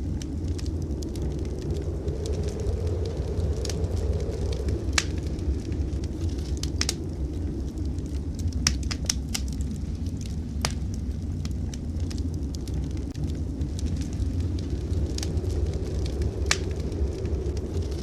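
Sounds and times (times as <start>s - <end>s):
steady low rumble: 0.0s - 18.0s
wood fire crackling and popping: 0.0s - 18.0s.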